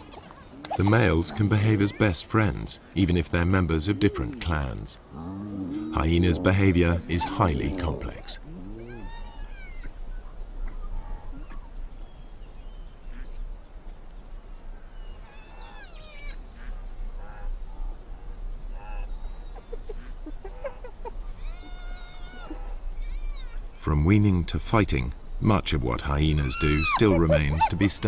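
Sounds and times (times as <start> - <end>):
steady high hiss: 0.0 - 28.0
hyenas whining: 5.1 - 10.0, 26.4 - 27.9.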